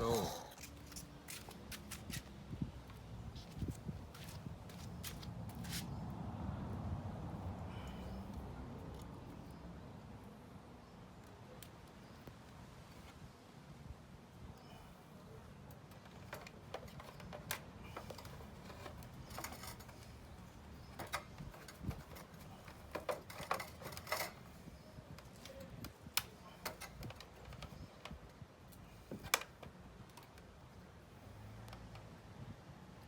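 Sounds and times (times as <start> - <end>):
metal and plastic parts rattling: 15.9 - 25.8.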